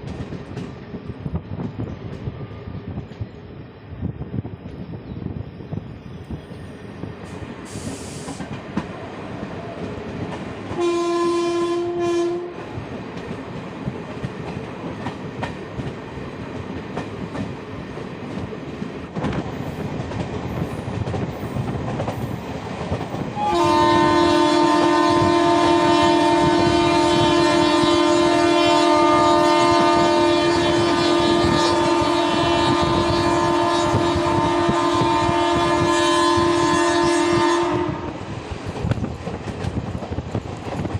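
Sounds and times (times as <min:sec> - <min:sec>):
train running on rails: 0:00.0 - 0:40.9
locomotive horn: 0:10.7 - 0:12.6, 0:23.4 - 0:38.2.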